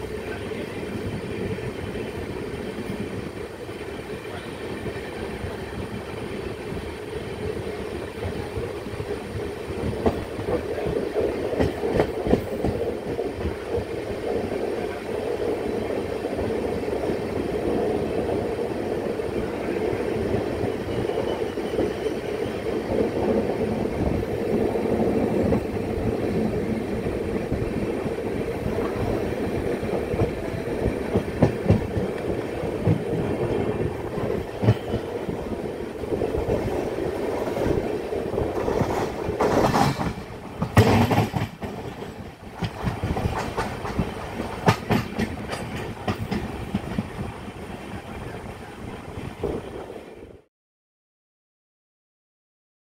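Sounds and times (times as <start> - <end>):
train wheels rumbling on rail: 0.0 - 50.4
wheels clicking over rail joints: 36.4 - 47.3.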